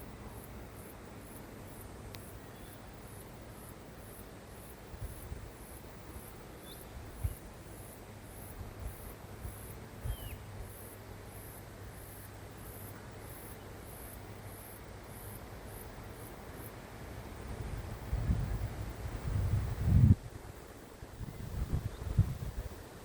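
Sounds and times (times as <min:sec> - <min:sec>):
high-pitched insect chirping: 0:02.2 - 0:16.3.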